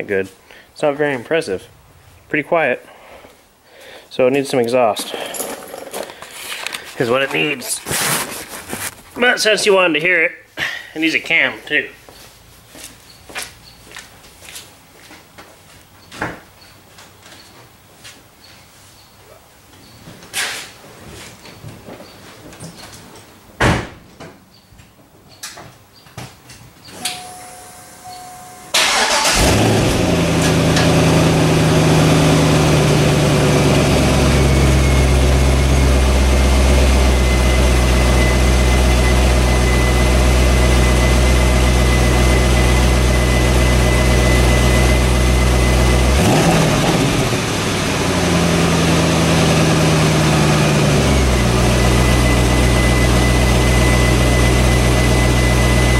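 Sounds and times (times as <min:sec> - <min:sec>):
car engine starting and idling: 0:27.0 - 0:55.9.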